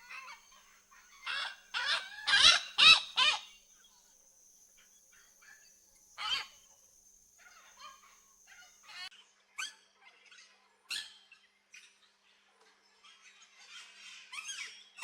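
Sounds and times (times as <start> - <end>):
birds chattering softly: 0.0 - 15.0
birds squawking harshly: 1.2 - 3.5.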